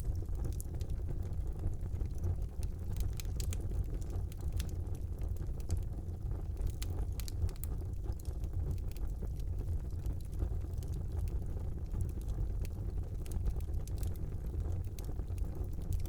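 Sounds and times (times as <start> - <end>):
logs crackling and popping: 0.0 - 16.0
low rumble of flames: 0.0 - 16.0.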